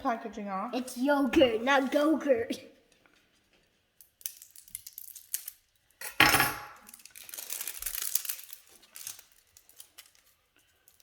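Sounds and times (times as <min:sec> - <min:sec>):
plastic packaging crinkling: 0:03.3 - 0:06.0, 0:06.8 - 0:11.0.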